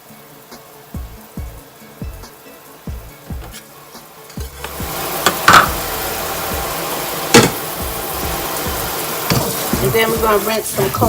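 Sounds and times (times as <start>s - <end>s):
quiet background music: 0.0s - 11.0s
water rushing into a sink: 0.0s - 11.0s
metal pot knocks: 4.4s - 5.9s.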